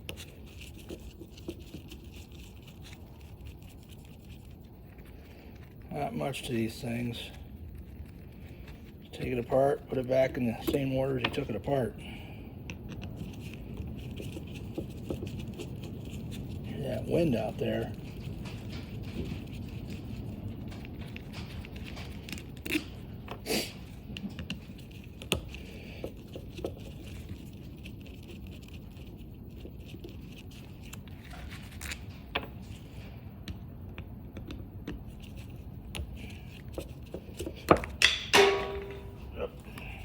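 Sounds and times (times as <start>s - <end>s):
small parts clicking and rattling: 12.7s - 33.0s
parts clattering: 37.4s - 40.0s.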